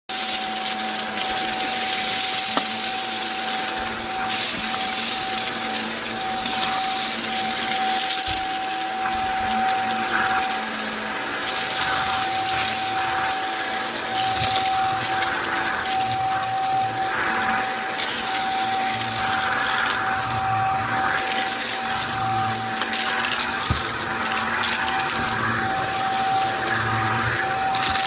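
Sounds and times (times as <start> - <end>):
vacuum cleaner running: 0.1 - 28.0.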